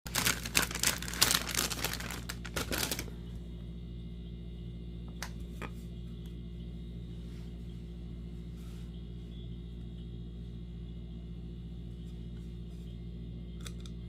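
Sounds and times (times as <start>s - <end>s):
plastic packaging crinkling: 0.1s - 3.2s.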